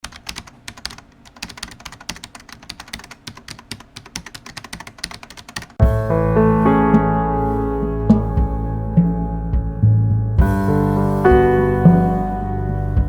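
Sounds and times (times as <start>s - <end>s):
keyboard typing clicks: 0.0s - 5.8s
music with deep bass: 5.8s - 13.0s.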